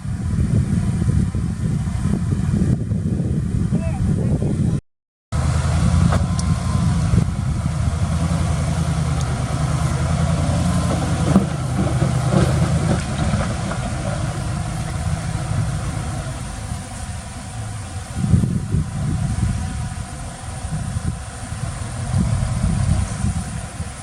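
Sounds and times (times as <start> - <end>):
diesel engine running: 5.3 - 24.0.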